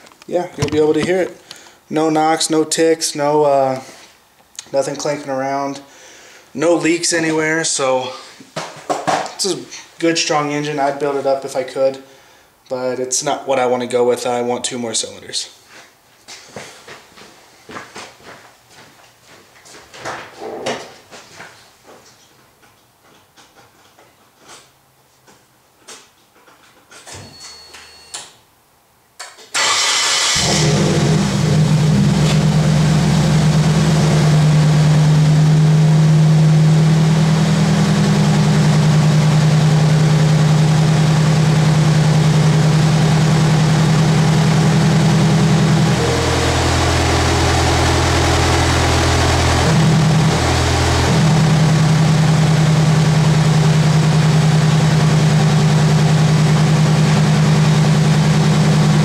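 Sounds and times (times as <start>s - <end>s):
car engine cranking and idling: 29.6s - 59.0s.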